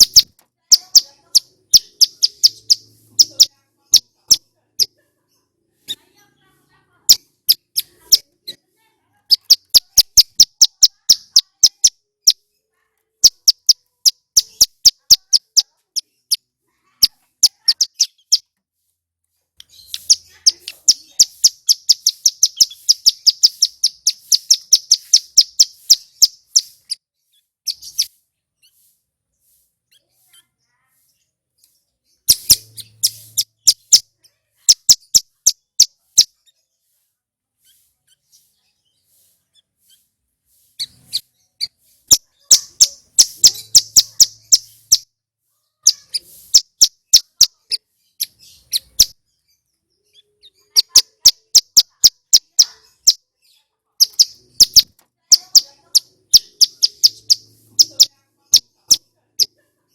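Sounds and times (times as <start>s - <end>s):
bird singing sharp high notes: 0.0s - 4.1s, 19.7s - 27.0s.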